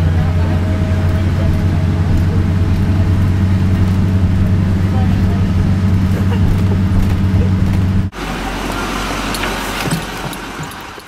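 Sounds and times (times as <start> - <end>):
loud low droning rumble: 0.0 - 9.8.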